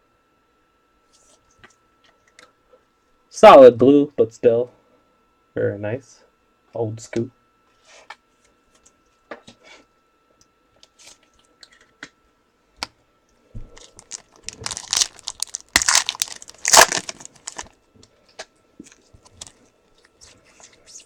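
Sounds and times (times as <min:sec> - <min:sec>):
plastic wrapper tearing and crinkling: 0:13.8 - 0:17.7.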